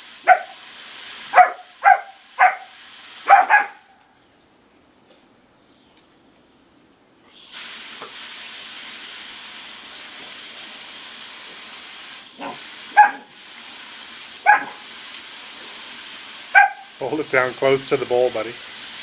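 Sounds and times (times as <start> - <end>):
steady hiss: 0.0 - 3.8, 7.2 - 19.0
puppy barking: 0.2 - 0.6, 1.3 - 4.0, 12.4 - 13.3, 14.4 - 14.8, 16.6 - 16.9.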